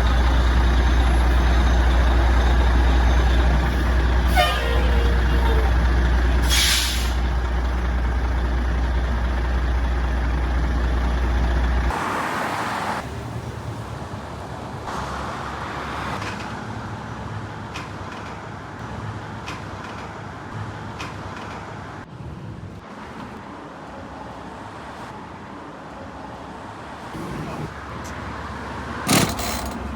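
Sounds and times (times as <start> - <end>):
fire truck engine rumbling: 0.0 - 12.4, 27.1 - 29.9
outdoor vehicle noise: 0.0 - 29.9.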